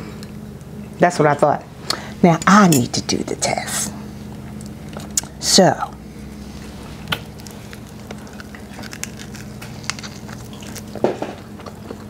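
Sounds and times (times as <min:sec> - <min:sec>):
low background hum: 0:00.0 - 0:12.0
chewing chicken wing crunches: 0:07.0 - 0:12.0.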